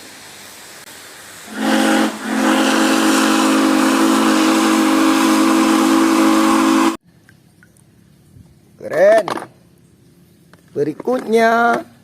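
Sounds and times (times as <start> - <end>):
steam hissing: 0.0 - 7.0
steam whistle blowing: 1.5 - 7.0.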